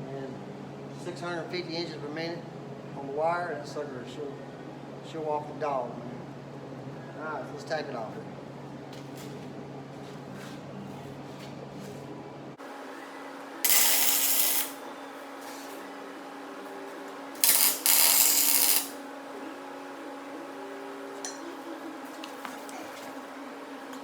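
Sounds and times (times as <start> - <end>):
welder hum: 12.6 - 24.0
welding arc crackle: 13.6 - 14.8, 17.3 - 19.0.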